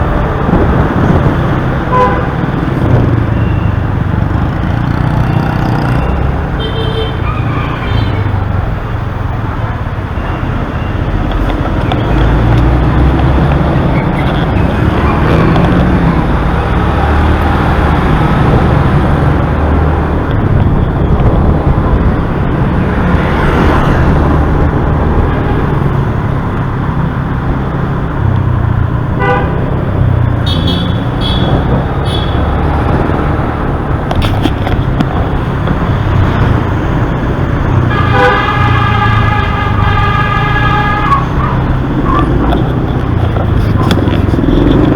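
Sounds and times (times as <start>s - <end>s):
motorbike engine and road noise: 0.0s - 44.9s
vehicle horns honking: 1.8s - 2.6s, 6.0s - 8.4s, 29.2s - 32.8s, 37.9s - 42.4s.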